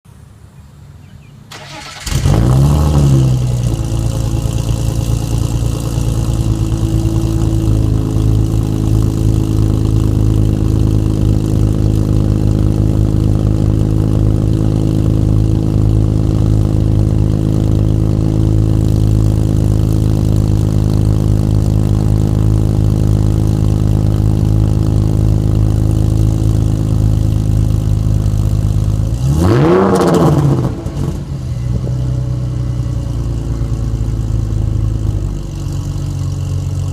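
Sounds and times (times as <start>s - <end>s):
car engine cranking: 1.5s - 6.8s
car engine loud fast idle: 1.5s - 29.1s, 30.4s - 36.9s.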